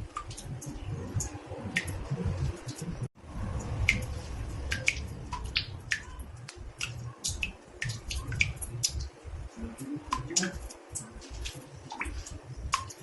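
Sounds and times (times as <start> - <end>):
low rumble: 0.0 - 7.1
water drops plinking into bathtub: 3.5 - 13.0.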